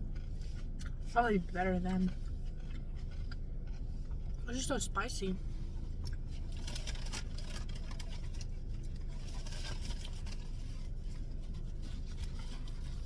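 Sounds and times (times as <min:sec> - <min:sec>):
person chewing food: 0:00.0 - 0:01.1, 0:02.1 - 0:04.4
low rumble inside car: 0:00.0 - 0:13.0
takeout containers crackling: 0:06.0 - 0:13.0.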